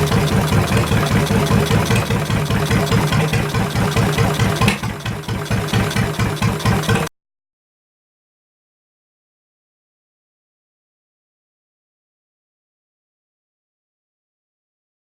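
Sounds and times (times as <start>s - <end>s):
boat motor running with pulsing beat: 0.0s - 7.1s.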